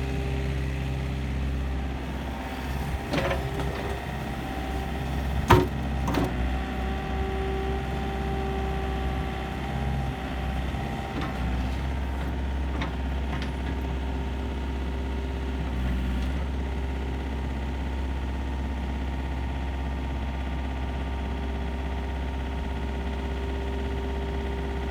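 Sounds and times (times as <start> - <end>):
engine whine: 0.0 - 13.9
excavator diesel engine running: 0.0 - 24.9.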